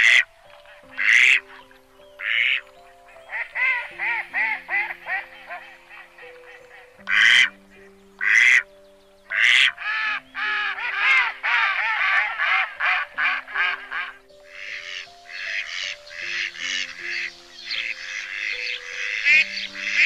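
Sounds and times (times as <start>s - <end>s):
calm background music: 0.0s - 20.0s
duck quacking: 1.0s - 1.4s, 7.0s - 7.5s, 8.2s - 8.6s, 9.3s - 20.0s.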